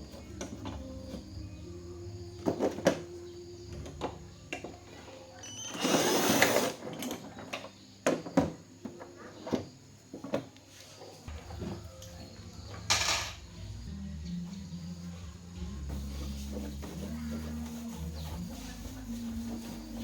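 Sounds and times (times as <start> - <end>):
scraping rustle: 15.6 - 20.0.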